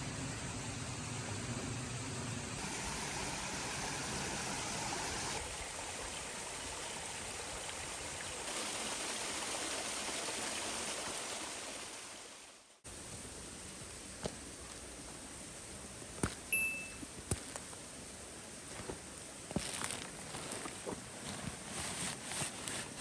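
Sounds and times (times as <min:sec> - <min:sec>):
stream water rushing: 0:02.6 - 0:12.6.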